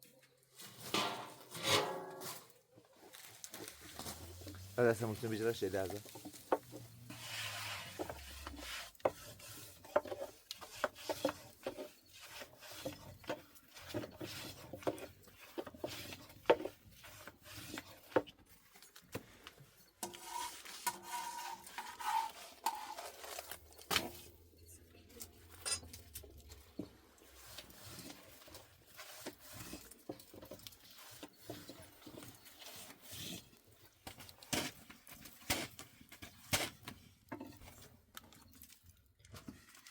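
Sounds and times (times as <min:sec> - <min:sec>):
kitchenware knocking and scraping: 0:00.9 - 0:02.4.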